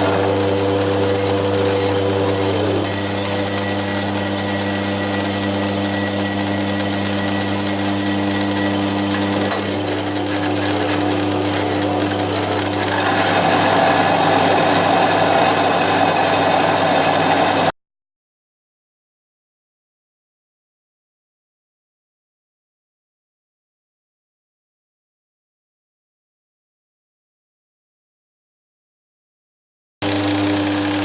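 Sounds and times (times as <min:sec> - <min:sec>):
cutter grinding metal: 0:00.0 - 0:17.7, 0:30.0 - 0:31.0
milling machine motor hum: 0:00.0 - 0:17.7, 0:30.0 - 0:31.0.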